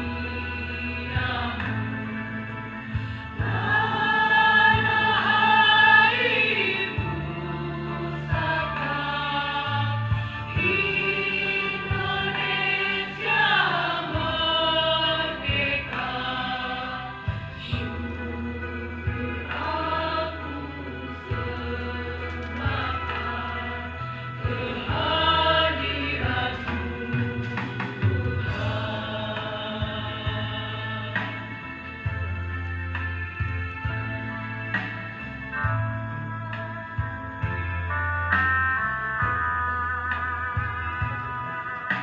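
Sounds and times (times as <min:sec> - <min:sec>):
school choir singing: 0:03.4 - 0:32.4.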